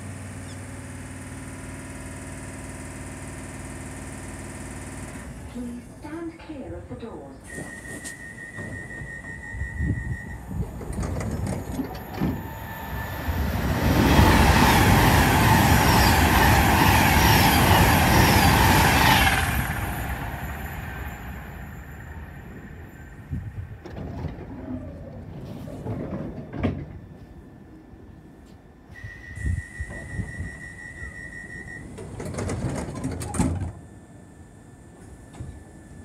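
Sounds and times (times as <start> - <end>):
train passing at speed: 7.5 - 32.9.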